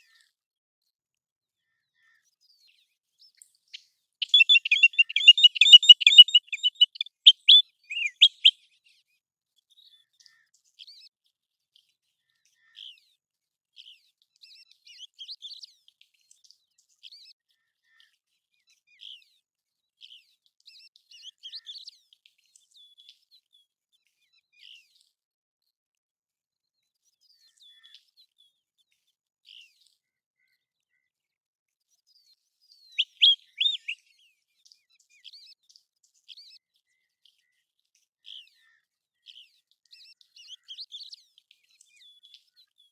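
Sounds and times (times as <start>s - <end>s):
plover whistled calls: 4.2s - 8.5s, 33.0s - 34.0s.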